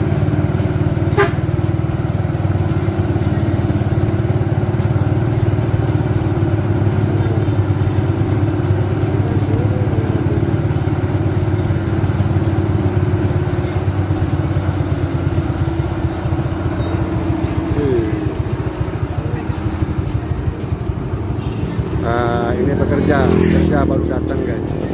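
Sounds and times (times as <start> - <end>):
diesel truck engine running: 0.0 - 24.9.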